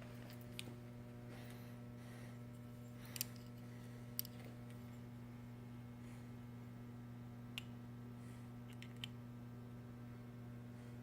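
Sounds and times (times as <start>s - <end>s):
low electrical hum: 0.0s - 11.0s
light clicks of metal parts: 2.8s - 5.1s.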